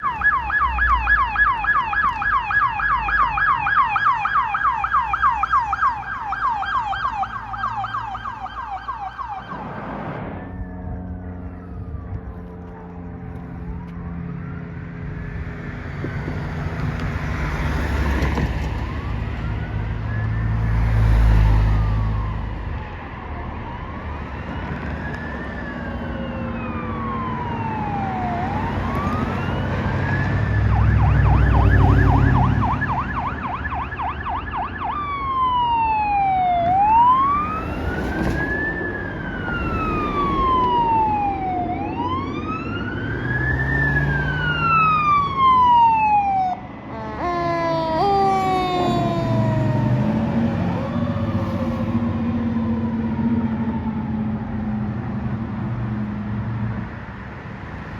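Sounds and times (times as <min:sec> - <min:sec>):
emergency sirens wailing: 0:00.0 - 0:57.9
heavy vehicle engines: 0:00.0 - 0:57.9.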